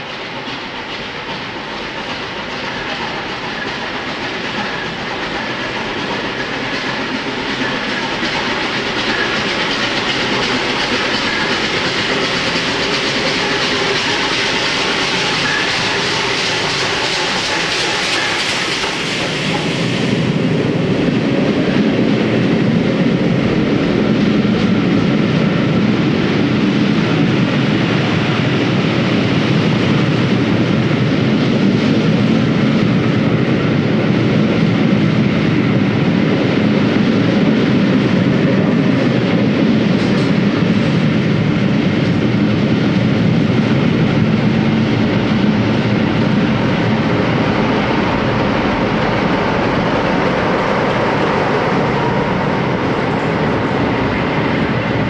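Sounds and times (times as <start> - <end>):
train wheels rumbling: 0.0 - 55.0
rushing hiss: 0.3 - 21.0.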